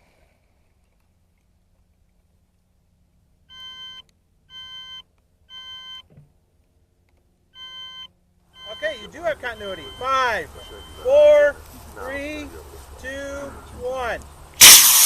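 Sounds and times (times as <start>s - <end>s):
electronic beeps: 7.6s - 11.4s.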